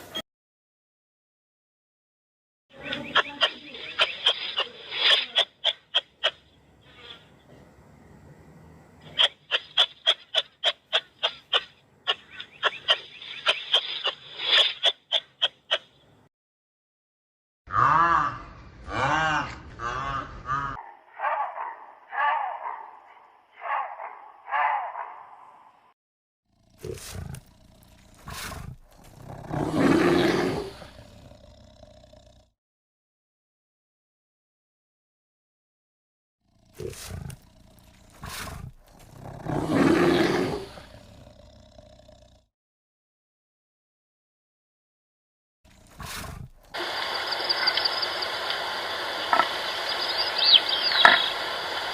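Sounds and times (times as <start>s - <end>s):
big cat roaring: 26.5s - 32.5s, 36.5s - 42.5s, 45.7s - 46.7s.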